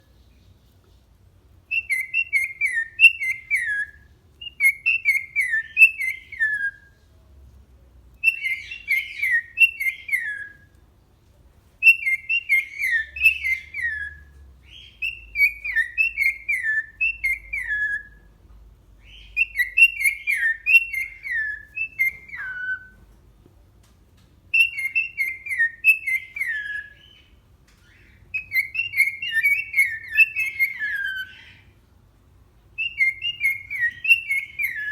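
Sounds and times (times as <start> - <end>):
cockatiel whistling: 1.7 - 6.9, 8.2 - 10.7, 11.8 - 18.2, 19.0 - 23.0, 24.5 - 31.7, 32.8 - 34.9.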